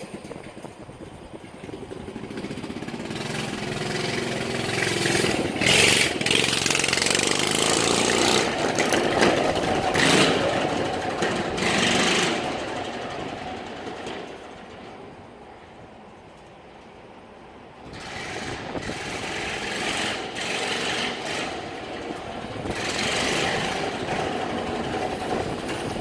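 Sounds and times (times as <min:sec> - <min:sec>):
small engine revving: 0:02.2 - 0:12.5, 0:17.9 - 0:21.8, 0:22.6 - 0:24.4.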